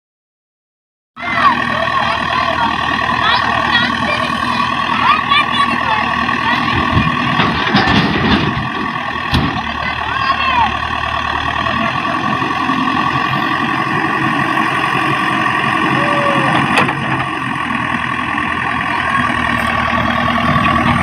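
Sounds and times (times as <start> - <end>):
heavy vehicle engine running: 1.2 - 21.0.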